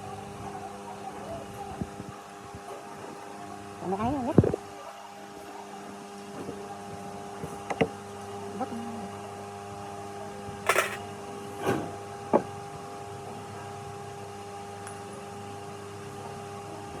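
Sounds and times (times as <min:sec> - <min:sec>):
sharp knocks or clinks: 0:10.7 - 0:11.0
steady machine hum: 0:10.7 - 0:11.1.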